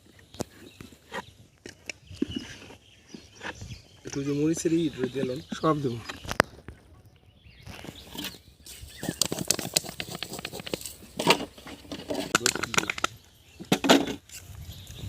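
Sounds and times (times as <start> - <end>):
clatter: 9.2 - 14.1
clicks and taps of food preparation: 12.3 - 13.1.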